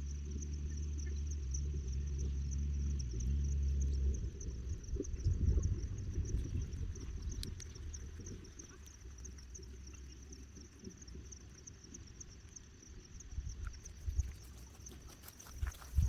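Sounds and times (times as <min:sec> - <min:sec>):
low rumble: 0:00.0 - 0:08.8
insects chirping: 0:00.0 - 0:16.0.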